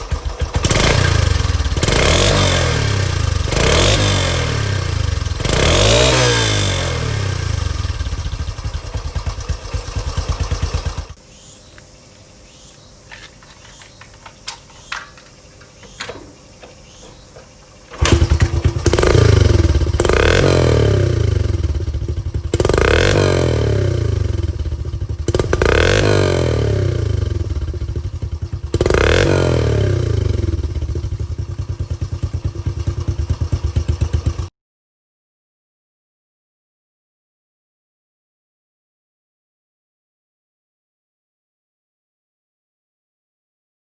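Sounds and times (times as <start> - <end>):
motorcycle engine revving: 0.0 - 11.8, 12.6 - 34.5
clicks: 11.7 - 18.5.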